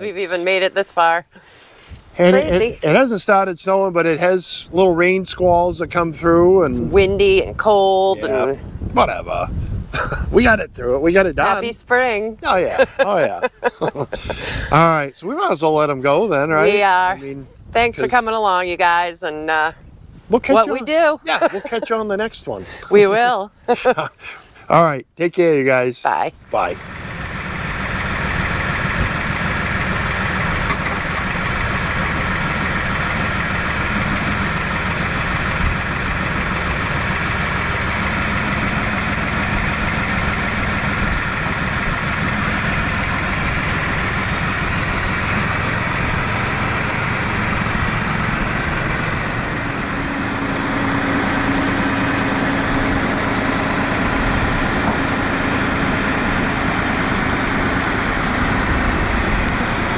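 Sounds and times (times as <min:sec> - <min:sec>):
steady hum: 0:26.4 - 0:59.9
heavy engine running: 0:26.5 - 0:59.9.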